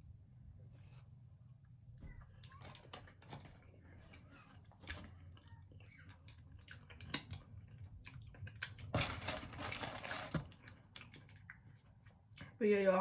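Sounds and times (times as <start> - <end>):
person chewing food: 2.4 - 12.6.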